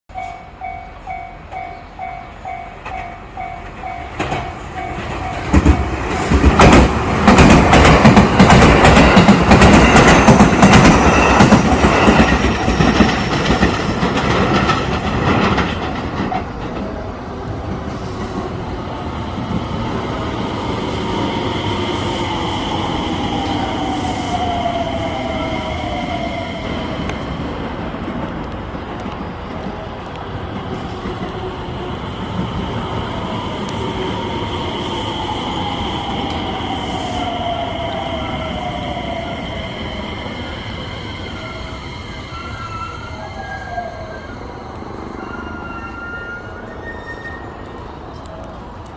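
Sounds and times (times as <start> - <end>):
train wheels clacking over rail joints: 3.8 - 18.6.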